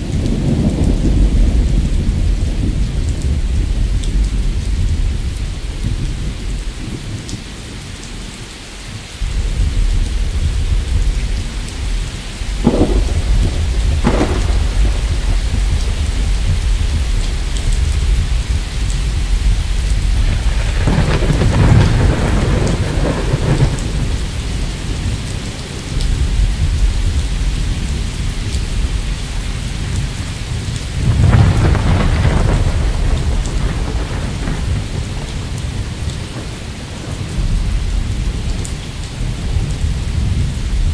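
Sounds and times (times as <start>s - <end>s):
loud peals of thunder: 0.0s - 6.4s, 9.2s - 28.9s, 29.9s - 40.9s
low rumble of thunder: 0.0s - 40.9s
steady rain: 0.0s - 40.9s
thunder cracks: 9.2s - 28.1s, 30.6s - 38.5s.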